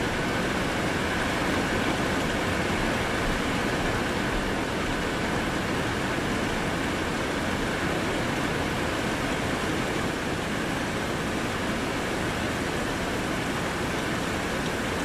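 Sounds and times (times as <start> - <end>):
steady rain hissing: 0.0 - 15.0.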